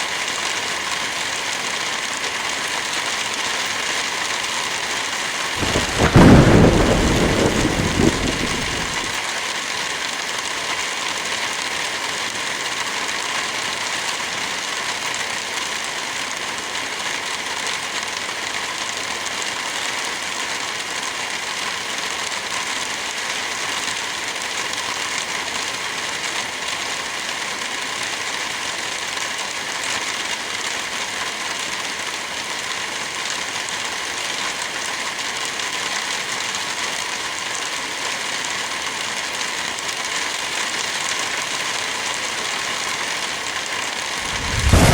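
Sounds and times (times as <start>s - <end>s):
heavy rain: 0.0s - 20.3s, 24.0s - 44.9s
thunder rumbling: 5.6s - 9.2s, 44.2s - 44.9s.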